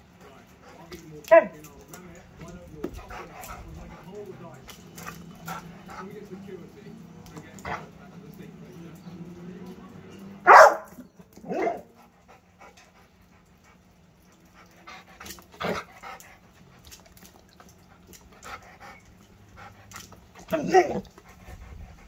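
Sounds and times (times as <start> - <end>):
dog barking sharply: 10.4 - 11.8.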